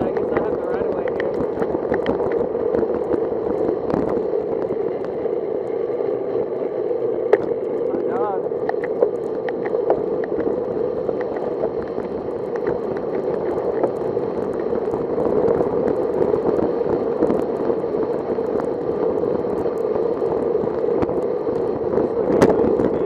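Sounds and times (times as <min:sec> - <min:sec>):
wind on microphone: 0:00.0 - 0:23.0.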